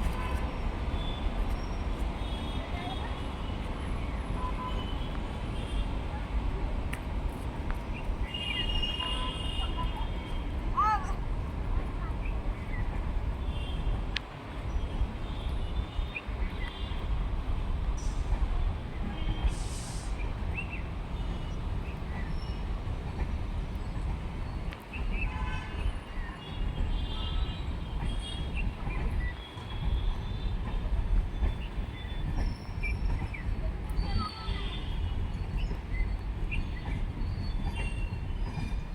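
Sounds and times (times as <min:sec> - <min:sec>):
train rumbling on rails: 0:00.0 - 0:38.9.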